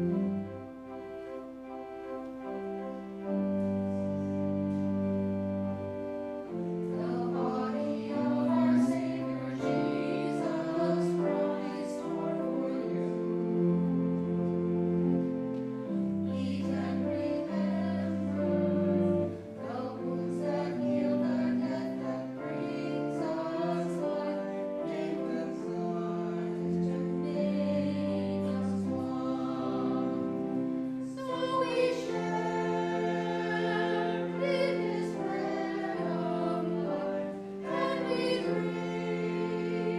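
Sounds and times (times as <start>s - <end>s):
sustained keyboard chords: 0.0s - 39.9s
voices singing: 3.2s - 39.9s.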